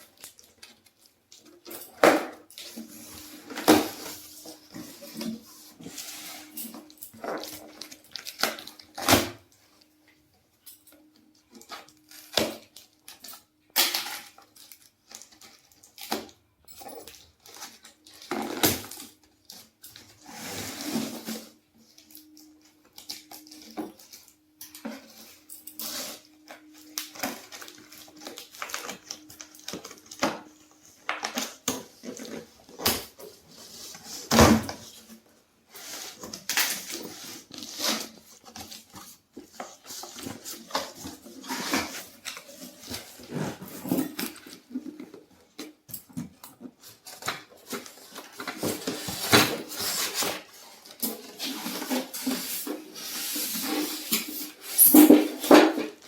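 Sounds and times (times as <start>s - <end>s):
packaging rustling and crackling: 17.0s - 56.0s.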